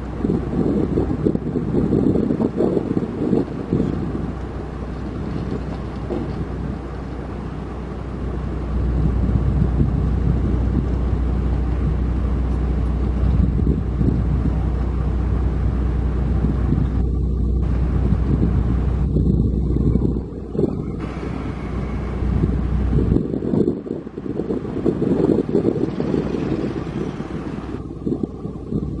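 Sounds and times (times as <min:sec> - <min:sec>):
diesel machinery rumbling: 0:00.0 - 0:29.0
wind buffeting microphone: 0:00.0 - 0:29.0.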